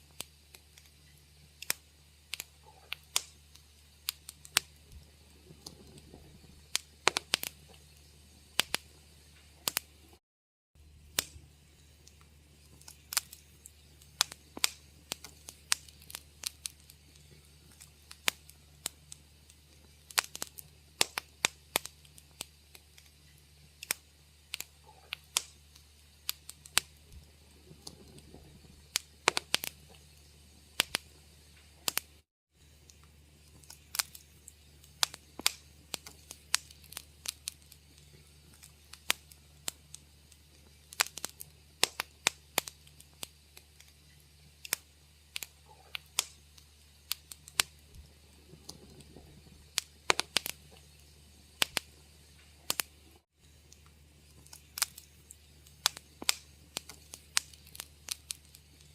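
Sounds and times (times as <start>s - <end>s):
wood fire crackling and popping: 0.0s - 10.2s, 10.8s - 58.9s
low hum: 0.9s - 10.2s, 22.2s - 40.9s, 46.6s - 57.4s.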